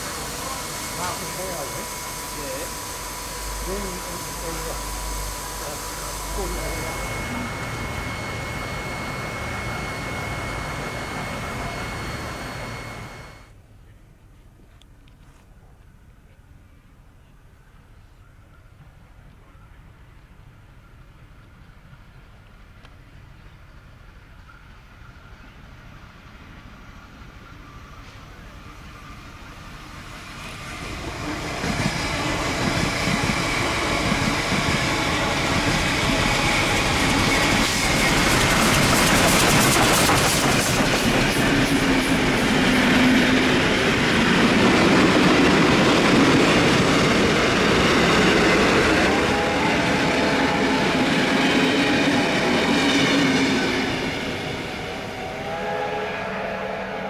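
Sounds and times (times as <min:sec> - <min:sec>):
high whine: 0:00.0 - 0:13.6, 0:27.6 - 0:57.0
steam locomotive running: 0:00.0 - 0:13.6, 0:17.8 - 0:57.0.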